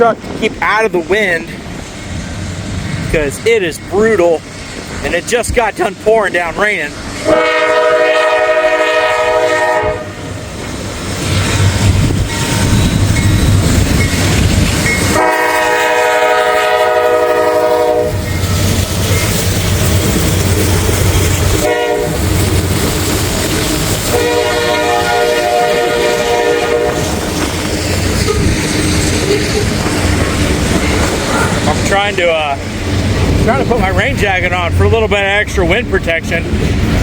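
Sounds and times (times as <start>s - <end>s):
locomotive heavy rumble: 0.0s - 37.0s
locomotive air horn blasts: 7.2s - 10.3s, 15.1s - 18.3s, 21.6s - 22.3s, 24.1s - 27.1s
wind buffeting microphone: 9.1s - 37.0s.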